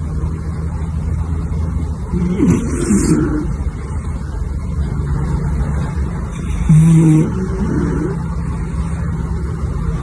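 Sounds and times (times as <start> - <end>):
dog snoring: 2.1 - 3.5, 6.4 - 8.3.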